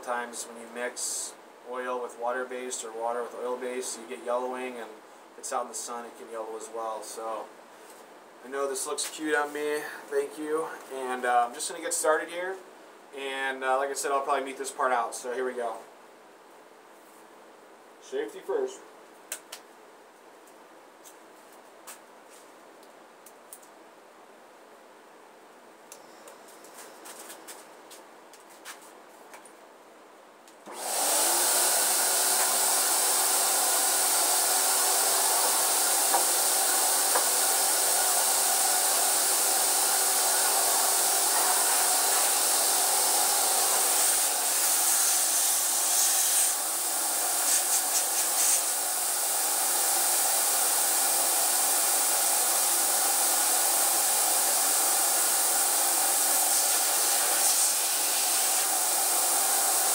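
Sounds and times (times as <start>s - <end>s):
paint sprayer hissing air: 30.7s - 59.9s.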